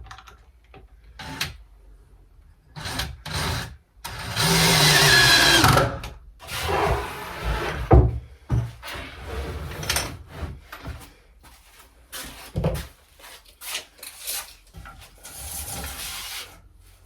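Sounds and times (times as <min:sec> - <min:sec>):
power drill driving screws: 0:02.8 - 0:06.0.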